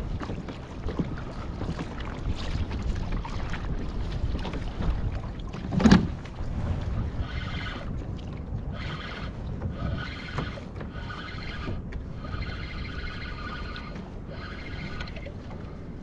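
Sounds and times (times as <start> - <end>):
wind rumbling on microphone: 0.0 - 16.0
pulsing mechanical whirr: 8.7 - 15.4.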